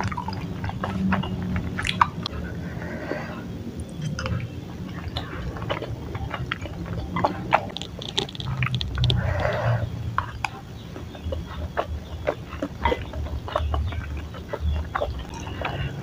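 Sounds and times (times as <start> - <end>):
wet mouth clicks and smacks: 0.0 - 2.4, 3.8 - 9.6, 11.3 - 16.0
person chewing: 0.0 - 2.8, 3.8 - 16.0
breathy noise: 2.2 - 10.6.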